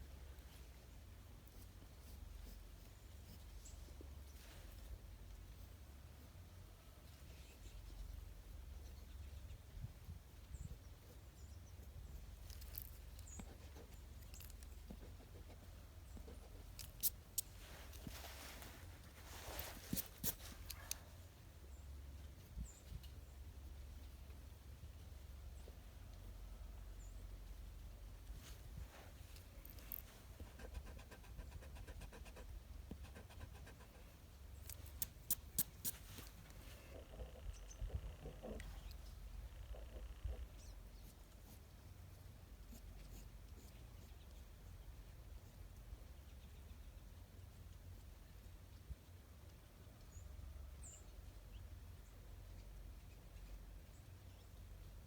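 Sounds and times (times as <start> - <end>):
pencil scratching on paper: 30.4 - 34.0.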